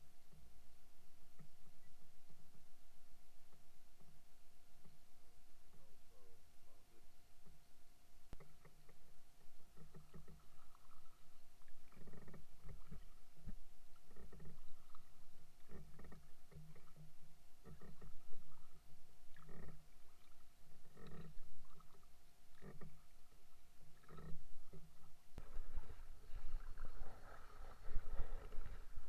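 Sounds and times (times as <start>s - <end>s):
paddle strokes in water: 8.4s - 29.0s.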